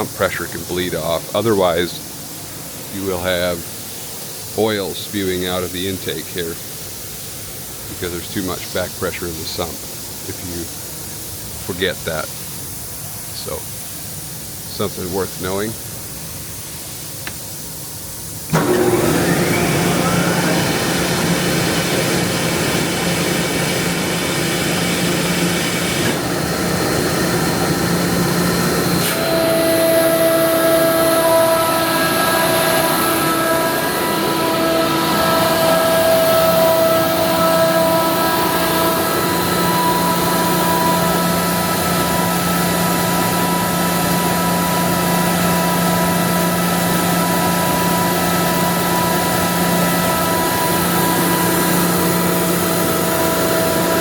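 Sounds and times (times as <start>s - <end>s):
air compressor humming: 0.0s - 54.0s
multi-toned whine: 18.5s - 54.0s.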